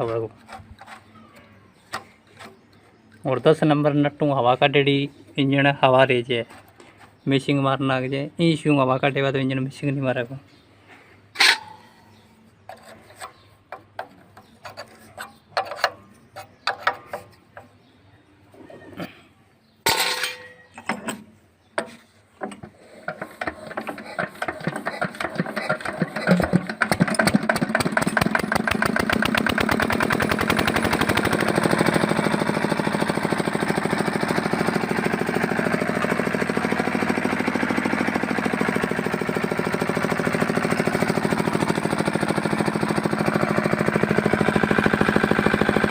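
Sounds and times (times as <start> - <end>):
hand-crank clanks and knocks: 20.0 - 29.4
diesel engine running: 23.7 - 45.9.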